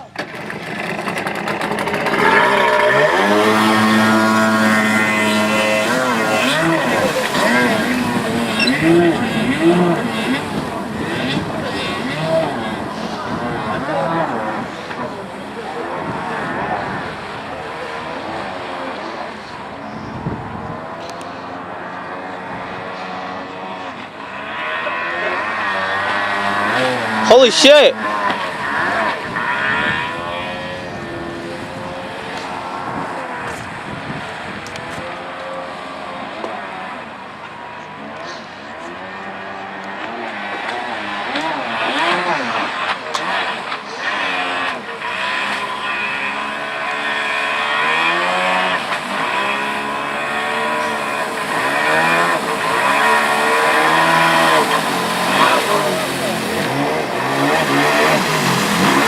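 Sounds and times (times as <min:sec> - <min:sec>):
jet ski engine: 0:00.0 - 0:59.0
rushing water noise: 0:00.0 - 0:59.0
steady rush of noise: 0:42.7 - 0:59.0.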